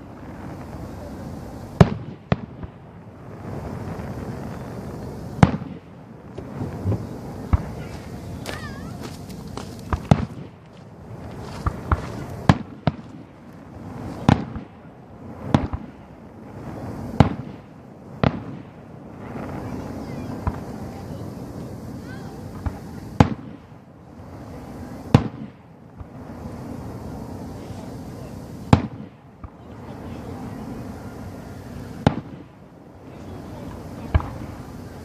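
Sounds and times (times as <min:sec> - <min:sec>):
fireworks booming and cracking: 0:00.0 - 0:35.0.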